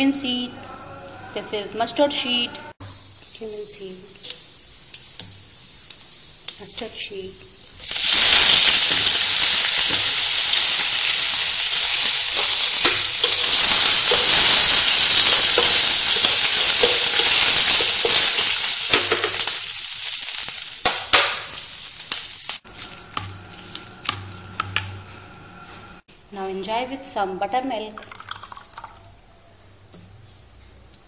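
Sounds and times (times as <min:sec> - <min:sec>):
spices sizzling in hot oil: 0:02.8 - 0:25.0.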